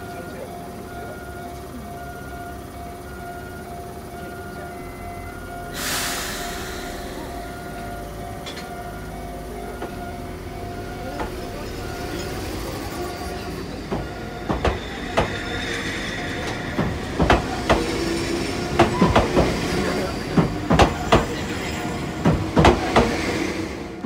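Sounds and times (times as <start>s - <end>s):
train running noise: 0.0s - 24.0s
train wheels clacking over rail joints: 11.0s - 24.0s.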